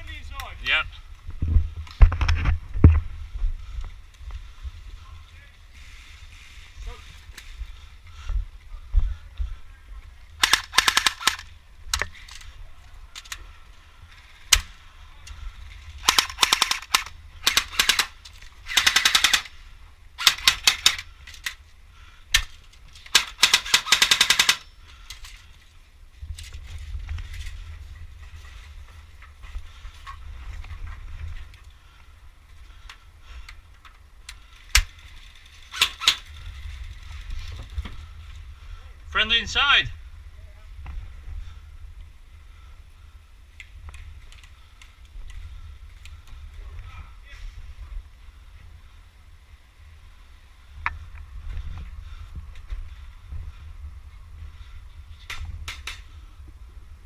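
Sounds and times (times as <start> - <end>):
airsoft guns firing: 10.4 - 11.5, 16.0 - 19.6, 20.2 - 21.1, 23.1 - 24.7.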